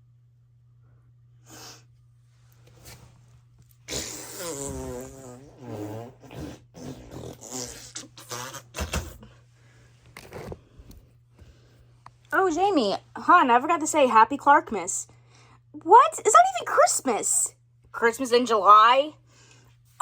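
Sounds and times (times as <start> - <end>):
buzzy fart noises: 3.8 - 9.2.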